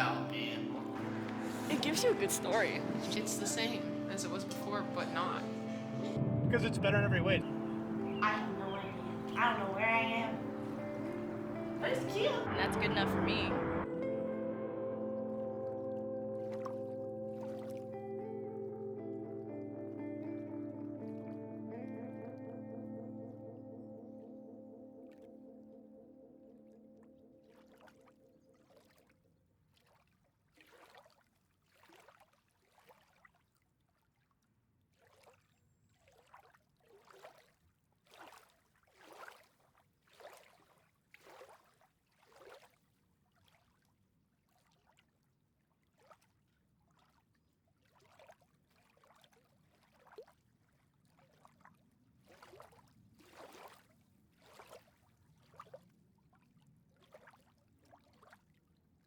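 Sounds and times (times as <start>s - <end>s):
water lapping: 0.0s - 13.9s, 16.4s - 18.2s, 27.4s - 58.7s.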